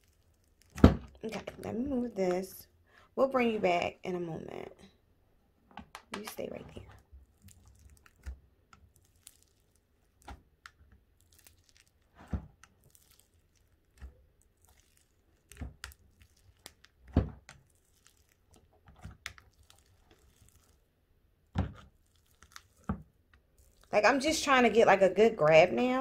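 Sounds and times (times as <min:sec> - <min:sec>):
slime crackling and tearing: 0:00.0 - 0:01.1, 0:06.8 - 0:20.9, 0:21.7 - 0:24.0.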